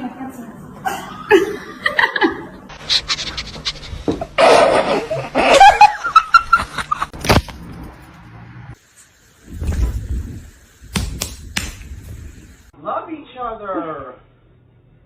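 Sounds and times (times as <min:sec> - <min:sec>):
people laughing: 0:04.4 - 0:07.1.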